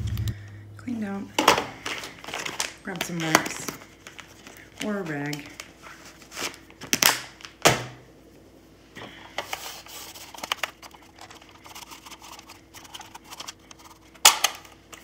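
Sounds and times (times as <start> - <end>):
plastic parts clicking and scraping: 9.4 - 15.0.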